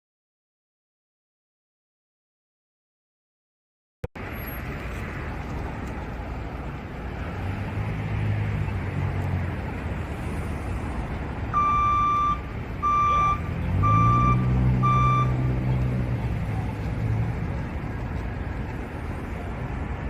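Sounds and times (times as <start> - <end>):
street noise: 4.1 - 20.0
heavy engine running: 8.4 - 20.0
vehicle reversing alarm beeping: 11.5 - 15.8.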